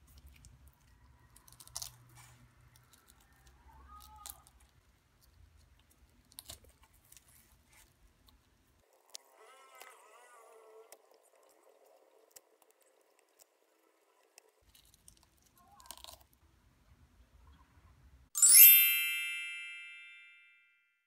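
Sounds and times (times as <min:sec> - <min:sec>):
faint crackles of fruit pulled off: 0:00.0 - 0:13.5, 0:14.3 - 0:16.4
ringing chime: 0:18.4 - 0:20.9.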